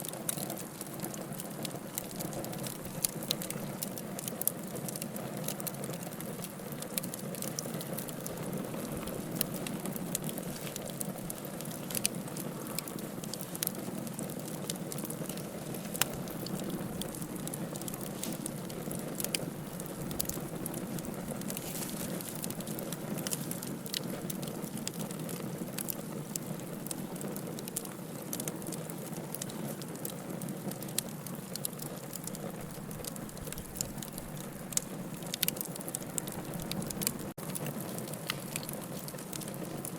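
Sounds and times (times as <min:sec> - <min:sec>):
log fire crackling: 0:00.0 - 0:39.9.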